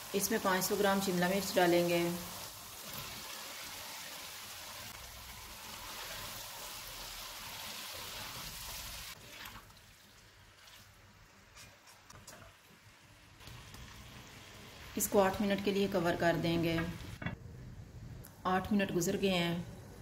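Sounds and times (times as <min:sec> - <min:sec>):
food sizzling in hot oil: 0:00.0 - 0:09.2.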